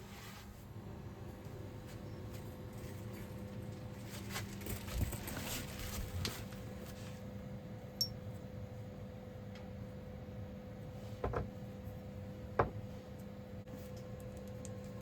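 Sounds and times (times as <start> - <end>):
steady low hum: 0.0 - 15.0
small knocks: 11.2 - 11.5.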